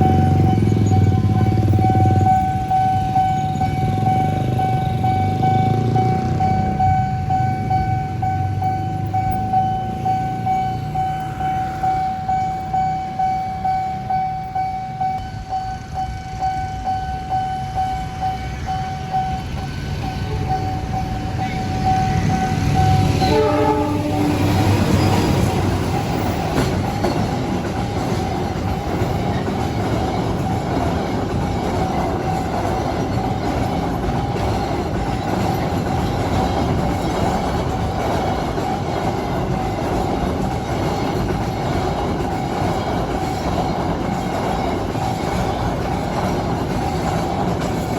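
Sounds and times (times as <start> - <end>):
level crossing warning alarm: 0.0 - 46.7
train wheels clacking over rails: 14.8 - 47.9
train horn: 23.0 - 25.5.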